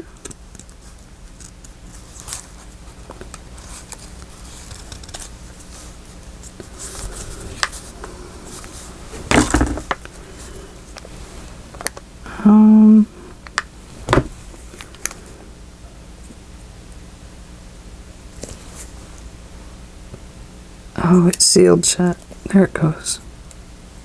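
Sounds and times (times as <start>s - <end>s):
paper rustling on a tabletop: 0.7s - 10.6s.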